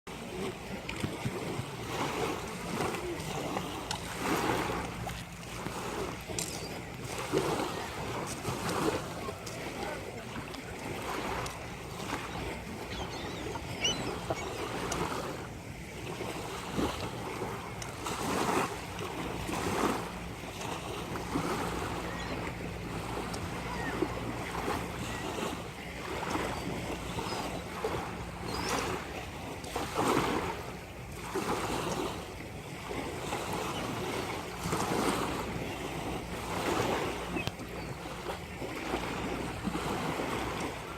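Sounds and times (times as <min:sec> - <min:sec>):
ocean surf washing onto beach: 0:00.2 - 0:26.6.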